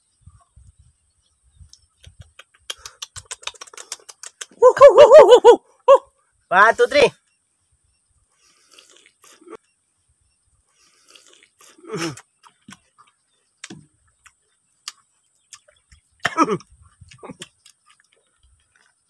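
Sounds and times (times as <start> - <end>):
people chewing ribs: 1.7 - 4.6, 8.4 - 9.8, 10.7 - 19.0
short falling voiced sounds: 4.6 - 6.0.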